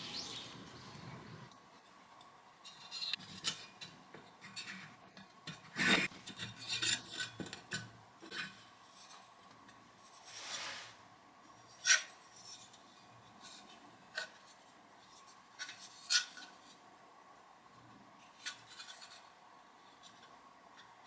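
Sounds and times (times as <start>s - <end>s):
rasping metal scrape: 10.2s - 11.0s.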